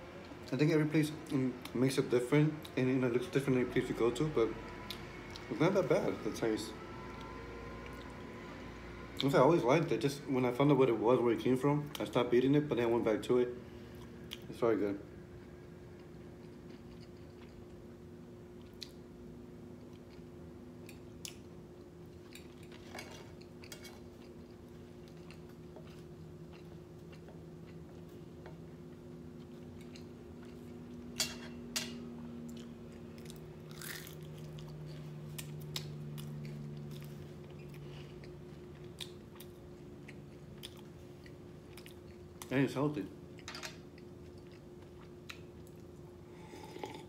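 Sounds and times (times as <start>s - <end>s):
man chewing: 15.8s - 17.9s, 19.8s - 31.2s, 32.4s - 42.5s, 43.3s - 47.0s.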